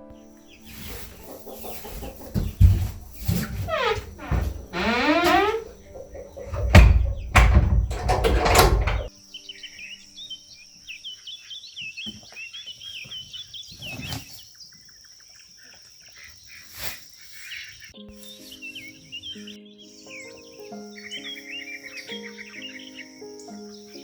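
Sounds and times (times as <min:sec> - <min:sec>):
small birds chirping: 0:00.0 - 0:07.9, 0:08.8 - 0:24.0
loud rustling: 0:00.6 - 0:09.1
soft thumps: 0:01.0 - 0:09.1.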